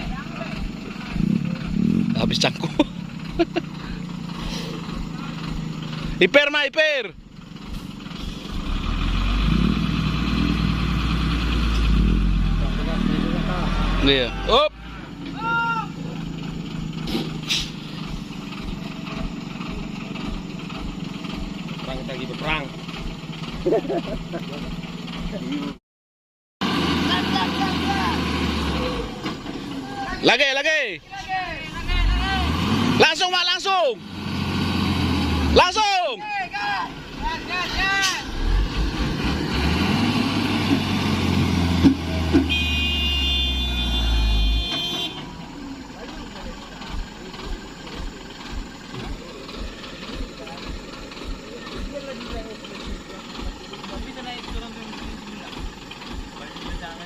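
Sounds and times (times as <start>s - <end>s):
truck diesel engine running: 0.0s - 25.8s, 26.6s - 57.0s
short air hisses: 17.0s - 18.0s.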